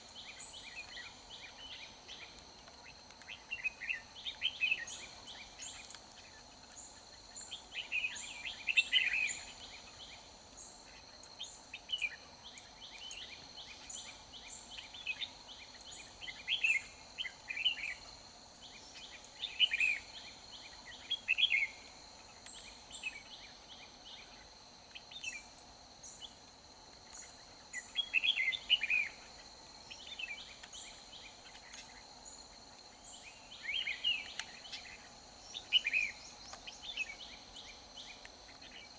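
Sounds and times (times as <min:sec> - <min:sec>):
high insect drone: 0:00.0 - 0:38.9
birds singing warbling phrases: 0:27.7 - 0:29.2, 0:33.0 - 0:38.9.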